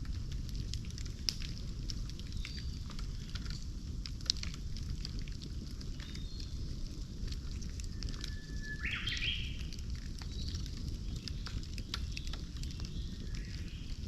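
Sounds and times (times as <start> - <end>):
campfire crackling and popping: 0.0 - 14.0
bird whistling call: 8.2 - 9.6.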